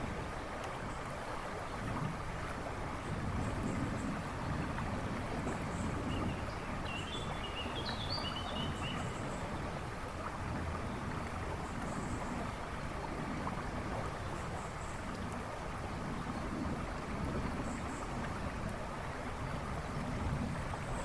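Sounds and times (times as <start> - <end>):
river water rushing: 0.0 - 21.0
songbird singing: 5.5 - 9.7.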